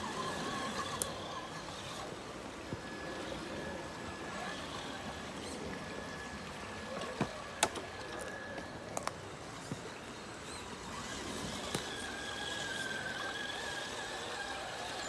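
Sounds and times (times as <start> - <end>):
flowing water: 0.0 - 15.0
rc car motor whine: 0.0 - 15.0.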